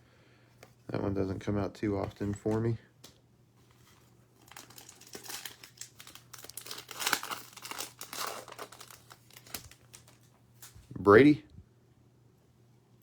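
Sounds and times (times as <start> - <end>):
wrapper crinkling and tearing: 4.4 - 10.9.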